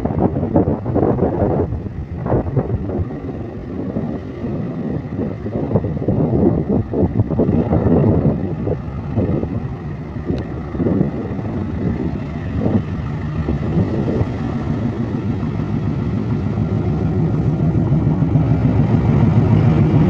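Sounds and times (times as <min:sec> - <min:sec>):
train rumbling past: 0:00.0 - 0:20.0
wind buffeting microphone: 0:00.0 - 0:20.0.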